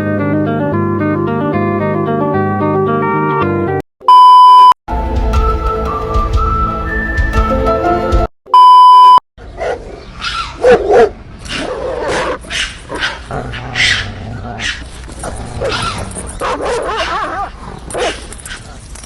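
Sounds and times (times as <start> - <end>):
electronic beep: 4.1 - 4.8, 8.5 - 9.2
dog barking and whining: 9.6 - 18.7.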